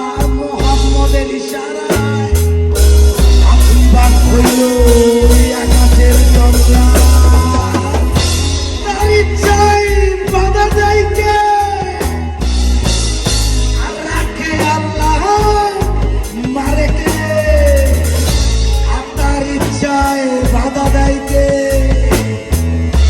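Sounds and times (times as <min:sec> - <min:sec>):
rock band playing: 0:00.0 - 0:23.0.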